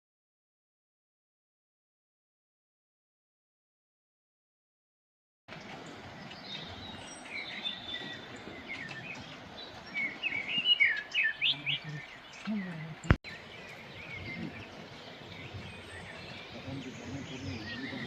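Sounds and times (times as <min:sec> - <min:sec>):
small birds chirping: 0:05.5 - 0:18.0.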